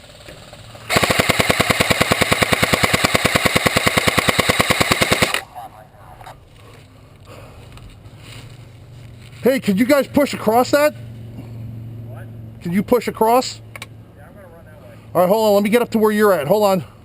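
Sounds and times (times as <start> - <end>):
automatic airsoft gun firing: 0.9 - 5.5.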